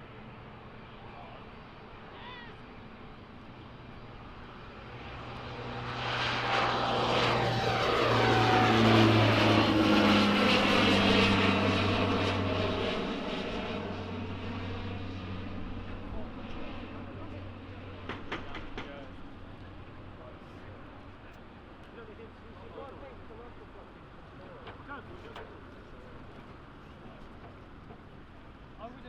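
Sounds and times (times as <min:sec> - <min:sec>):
aircraft engines passing by: 0:00.0 - 0:29.0.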